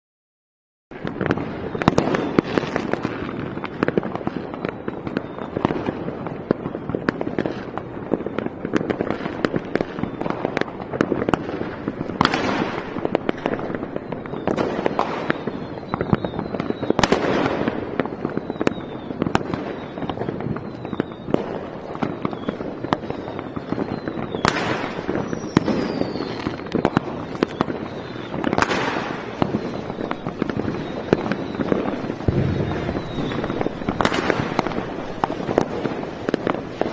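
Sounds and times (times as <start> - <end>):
fireworks crackling: 0.9 - 36.9
loud firework bursts: 0.9 - 36.9
falling firework whistles: 1.0 - 36.9.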